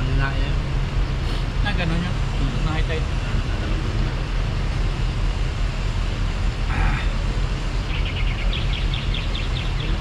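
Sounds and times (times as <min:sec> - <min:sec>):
steady low rumble: 0:00.0 - 0:10.0
small bird chirping: 0:07.8 - 0:10.0.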